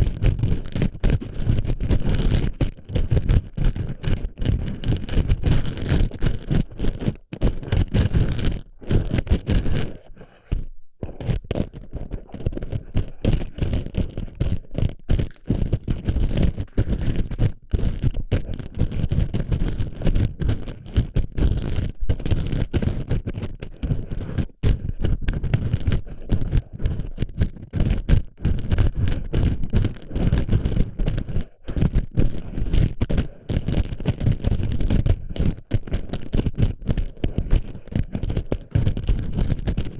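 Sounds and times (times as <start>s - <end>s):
plastic pellets clicking on microphone: 0.0s - 39.9s.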